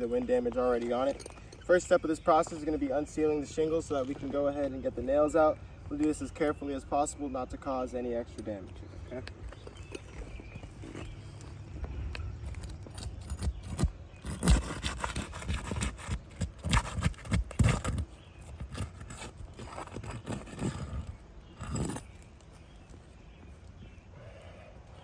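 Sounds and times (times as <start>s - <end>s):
pry bar knocking and scraping shingle: 12.2s - 22.2s.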